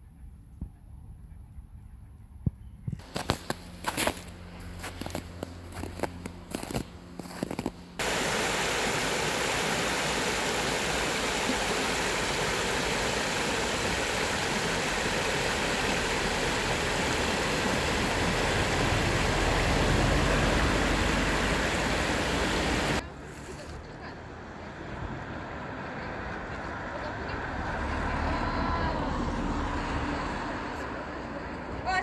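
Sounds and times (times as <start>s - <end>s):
faint footsteps: 3.0s - 20.4s
steady rushing noise: 8.0s - 23.0s.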